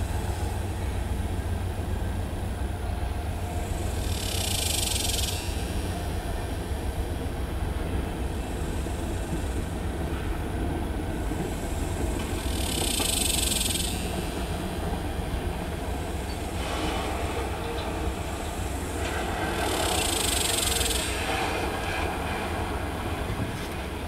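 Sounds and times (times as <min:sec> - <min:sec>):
freight train wheels rumbling on rail: 0:00.0 - 0:24.0.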